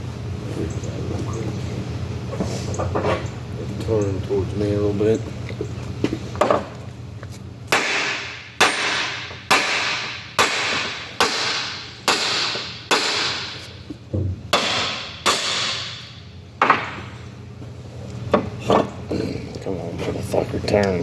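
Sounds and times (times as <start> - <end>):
hammer striking metal valve: 7.7 - 13.6, 14.5 - 17.0.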